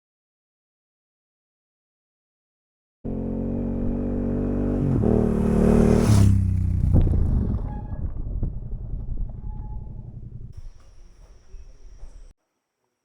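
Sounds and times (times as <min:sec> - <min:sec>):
motorcycle engine running: 0:03.1 - 0:12.3.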